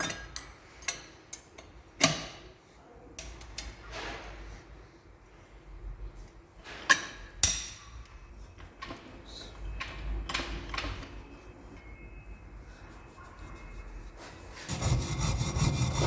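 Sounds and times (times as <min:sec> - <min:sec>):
scraping or rubbing: 0:12.7 - 0:16.0.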